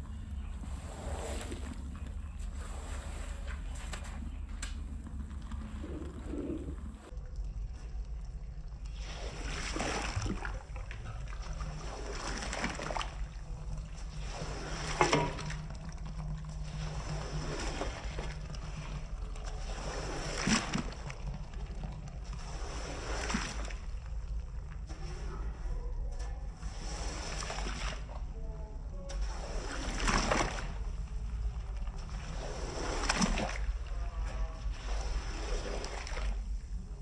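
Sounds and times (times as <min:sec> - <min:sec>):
wet rug swishing strokes: 0:00.0 - 0:04.5, 0:09.0 - 0:10.7, 0:22.3 - 0:24.0, 0:26.7 - 0:28.1, 0:29.2 - 0:31.0, 0:31.8 - 0:36.4
steady low hum: 0:00.0 - 0:37.0
water sloshing and splashing: 0:00.0 - 0:37.0.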